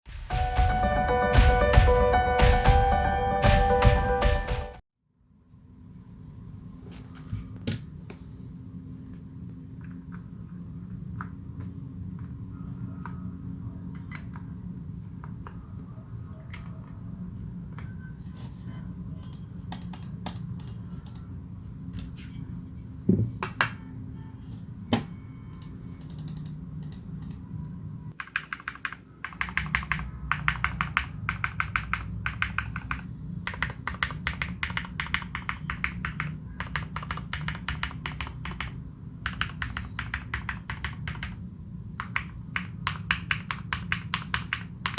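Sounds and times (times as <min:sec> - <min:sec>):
mechanical keyboard typing: 0:19.2 - 0:21.2, 0:25.6 - 0:27.4, 0:28.1 - 0:41.4, 0:42.0 - 0:44.9.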